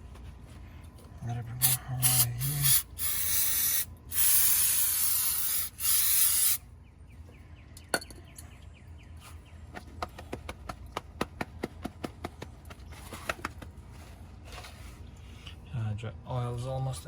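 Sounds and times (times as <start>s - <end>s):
aerosol spray hissing: 1.6s - 6.6s.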